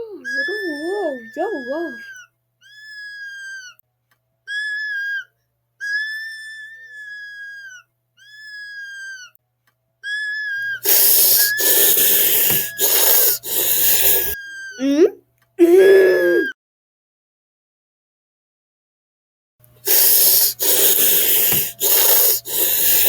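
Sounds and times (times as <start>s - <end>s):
cartoon puppy whimpering: 0.0s - 3.8s, 4.5s - 9.4s, 10.0s - 16.6s.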